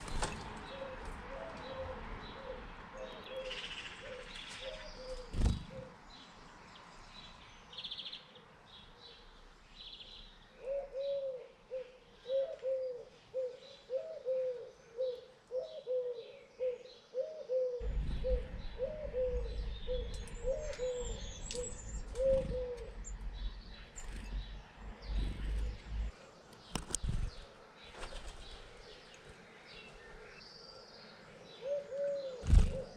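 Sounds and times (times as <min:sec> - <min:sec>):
small birds chirping: 0:00.0 - 0:32.9
dove cooing: 0:00.7 - 0:06.0, 0:10.6 - 0:23.1, 0:31.6 - 0:32.9
low rumble: 0:17.8 - 0:26.1.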